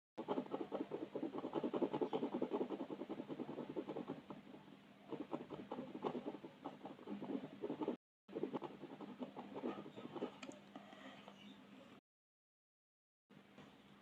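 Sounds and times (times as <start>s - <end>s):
colouring strokes scratching on paper: 0.2s - 10.6s.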